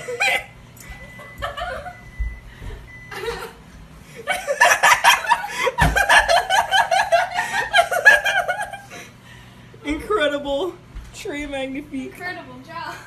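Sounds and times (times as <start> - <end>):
person laughing hard: 0.0 - 0.6, 4.2 - 9.0.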